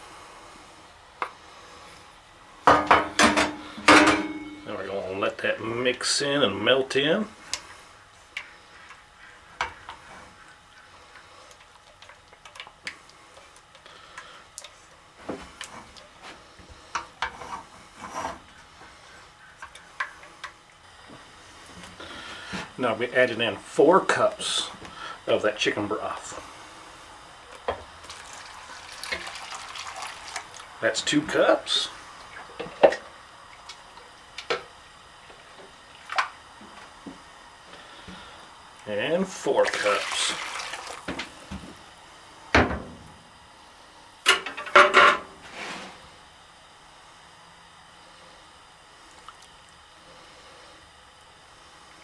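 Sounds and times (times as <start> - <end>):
broth splashing into pot: 28.0 - 30.8, 39.5 - 41.2.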